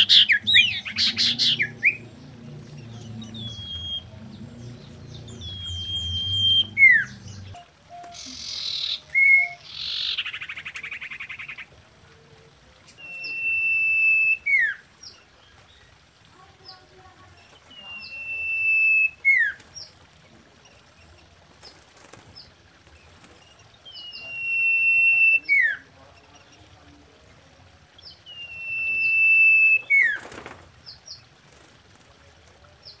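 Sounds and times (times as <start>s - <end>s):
bird whistling song: 0.0s - 2.1s, 2.8s - 4.2s, 4.8s - 11.6s, 12.9s - 14.8s, 17.7s - 19.6s, 23.8s - 25.8s, 28.1s - 30.2s.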